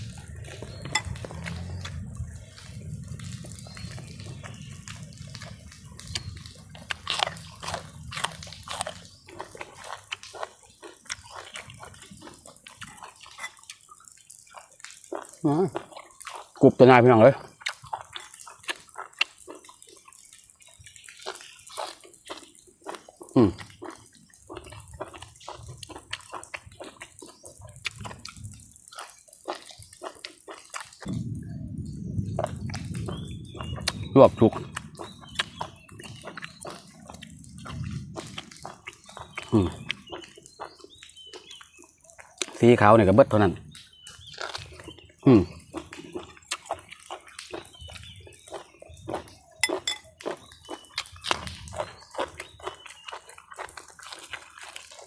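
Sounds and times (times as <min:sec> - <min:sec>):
wet mouth smacks and clicks: 0:04.9 - 0:13.9, 0:17.6 - 0:20.3, 0:23.6 - 0:31.1, 0:32.4 - 0:41.6, 0:45.7 - 0:55.0
low steady rumble: 0:31.1 - 0:34.1.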